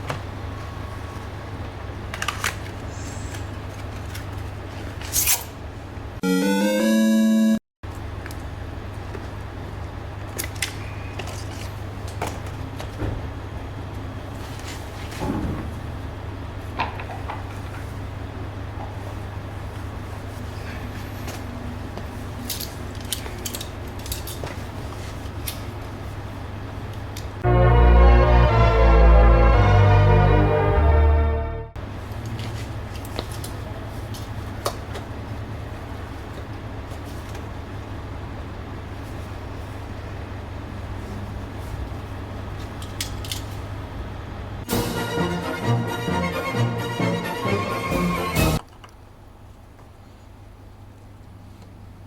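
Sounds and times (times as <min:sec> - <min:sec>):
loud music with bells: 0:44.7 - 0:48.6.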